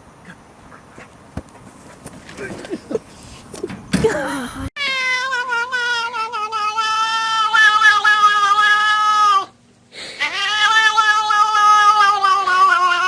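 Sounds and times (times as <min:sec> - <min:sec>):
cat yowling: 0:04.8 - 0:09.5, 0:10.2 - 0:13.0.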